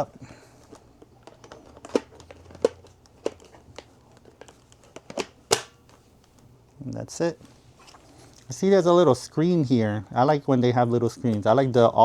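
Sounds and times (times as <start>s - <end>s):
plastic vacuum bin clicks: 1.2s - 6.0s.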